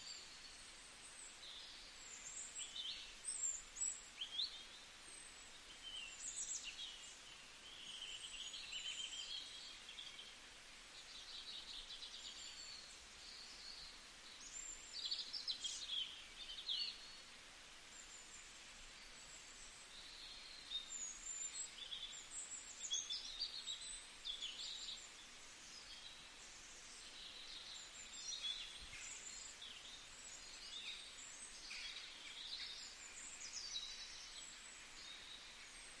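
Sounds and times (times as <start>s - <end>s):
faint birdsong chirps: 0.0s - 36.0s
steady background hiss: 0.0s - 36.0s.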